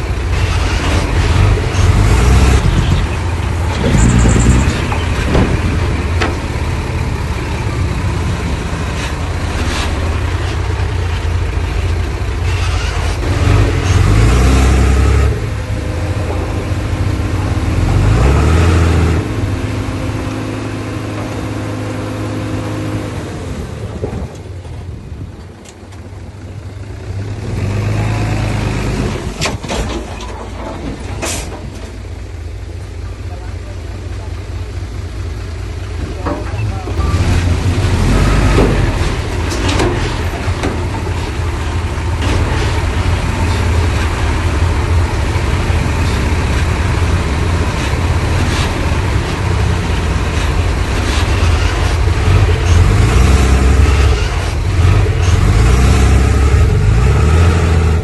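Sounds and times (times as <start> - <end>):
heavy diesel engines running: 0.0 - 58.0.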